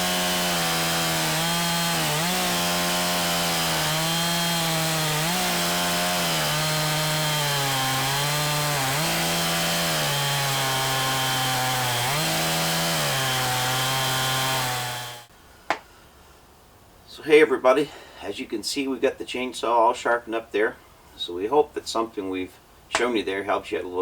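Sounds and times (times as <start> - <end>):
chainsaw cutting wood: 0.0 - 15.3.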